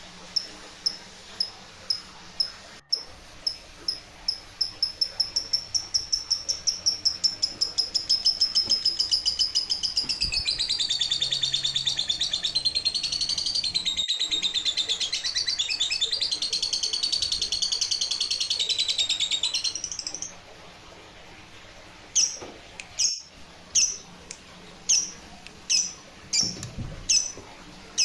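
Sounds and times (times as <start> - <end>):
washing machine tub squeaking: 24.9 - 28.0.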